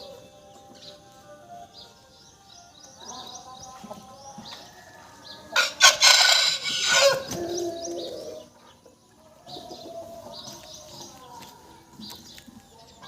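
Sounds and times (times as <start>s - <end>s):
small birds chirping: 0.0s - 13.0s
rooster crowing: 4.6s - 7.4s.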